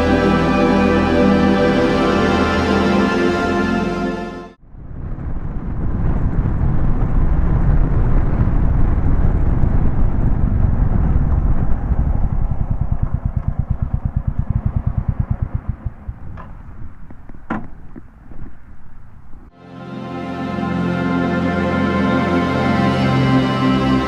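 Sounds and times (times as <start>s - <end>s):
rushing wind noise: 4.6s - 19.5s
motorcycle engine running: 10.6s - 18.1s.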